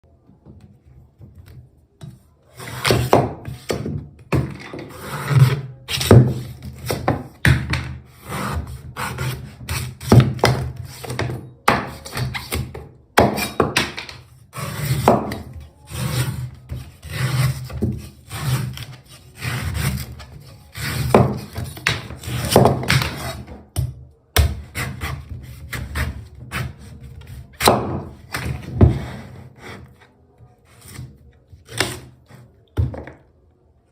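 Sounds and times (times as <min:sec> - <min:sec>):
rasping scrapes: 0:02.5 - 0:03.8, 0:04.7 - 0:07.0, 0:08.1 - 0:10.2, 0:14.5 - 0:23.5, 0:28.3 - 0:32.5.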